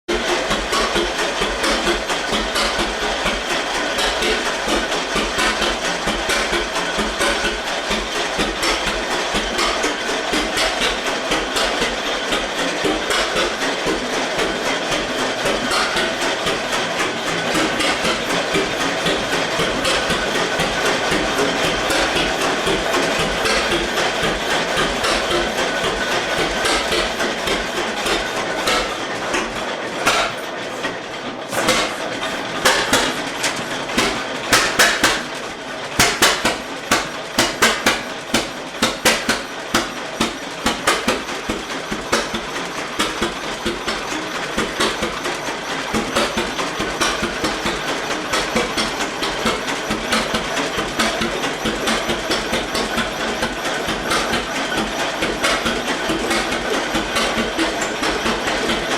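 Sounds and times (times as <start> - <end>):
tractor engine exhaust pounding: 0.0 - 58.9.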